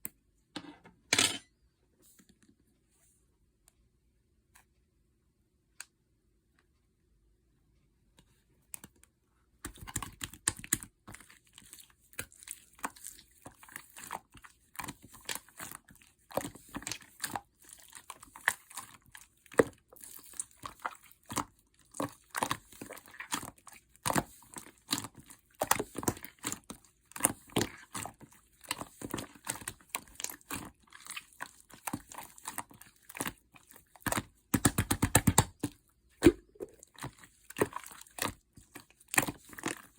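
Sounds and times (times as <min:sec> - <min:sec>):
slime squished by hand: 0:09.6 - 0:39.9.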